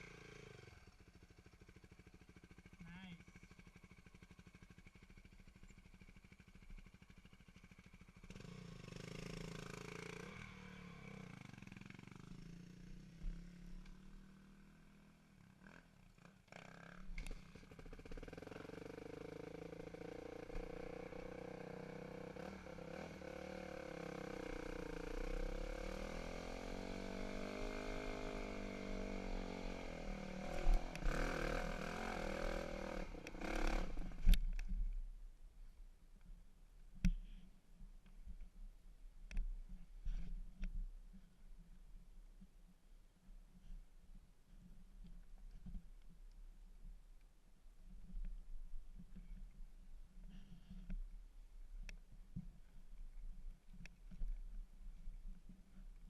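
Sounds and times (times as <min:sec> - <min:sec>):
dirt bike engine revving: 0:08.2 - 0:14.7, 0:17.7 - 0:34.3.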